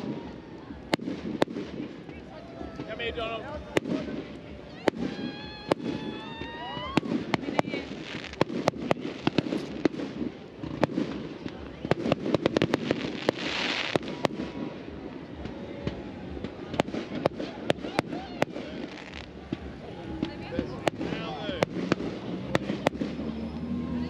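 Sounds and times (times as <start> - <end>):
hissing firework burst: 0.0 - 23.6
fireworks popping and cracking: 0.0 - 23.7
crowd murmuring: 0.0 - 24.0
rising firework whistle: 3.8 - 9.8.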